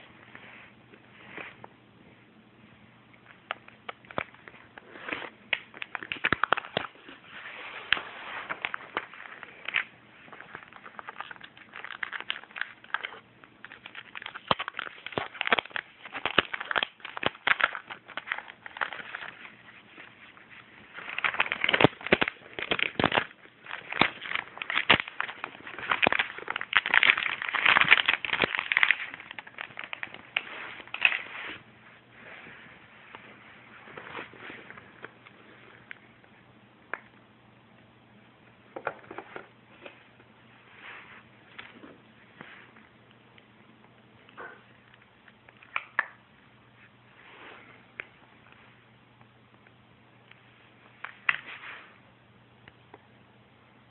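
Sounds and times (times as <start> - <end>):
packaging crackling and rustling: 3.4 - 31.6.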